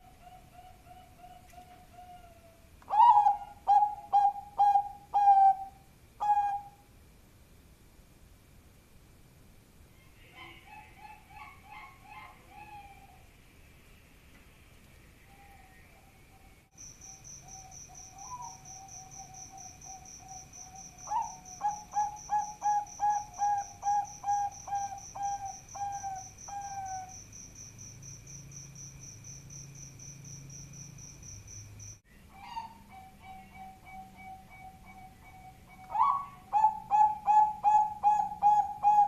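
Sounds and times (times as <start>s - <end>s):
dove cooing: 0.0s - 6.8s, 10.2s - 13.3s, 18.0s - 27.2s, 32.3s - 39.0s
high pulsing chirp: 16.3s - 32.0s, 32.8s - 39.0s.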